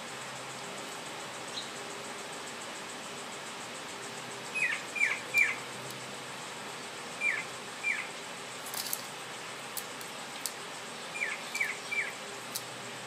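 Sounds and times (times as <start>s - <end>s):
high bird chirps sliding downward: 4.6s - 5.6s, 11.2s - 12.2s.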